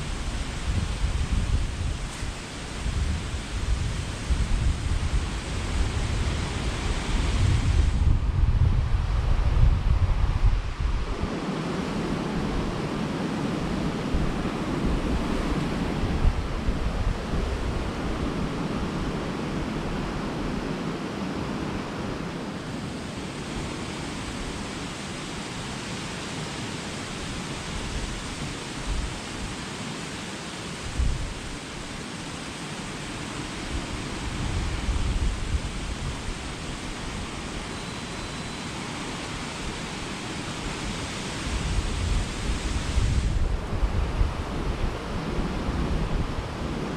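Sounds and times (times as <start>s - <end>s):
waterfall roaring: 0.0s - 8.0s, 10.8s - 46.9s
wind buffeting microphone: 0.0s - 22.1s, 30.8s - 32.0s, 32.8s - 46.9s.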